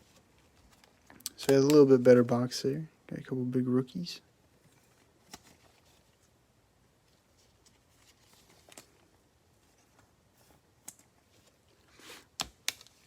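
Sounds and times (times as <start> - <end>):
trading cards clicking and rustling: 0.7 - 2.0.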